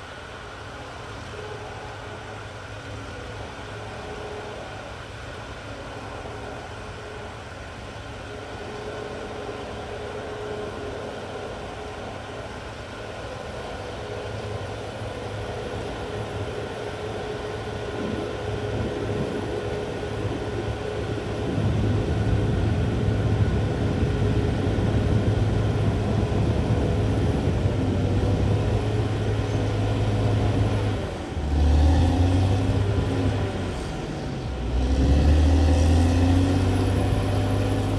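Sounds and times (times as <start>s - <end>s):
bulldozer diesel engine running: 14.1s - 37.9s.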